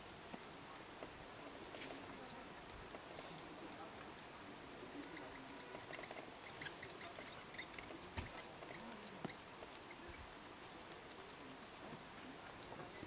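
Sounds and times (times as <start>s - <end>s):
faint outdoor ambience: 0.0s - 13.0s
small ticks and clicks: 0.0s - 13.0s.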